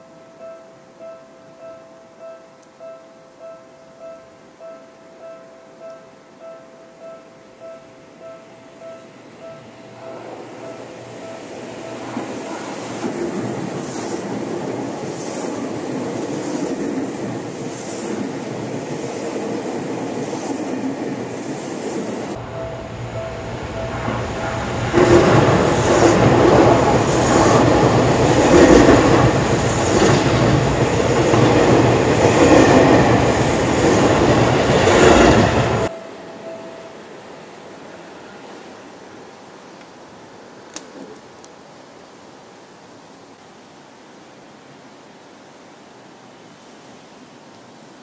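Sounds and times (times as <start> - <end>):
train wheels rumbling on rails: 9.4 - 35.9.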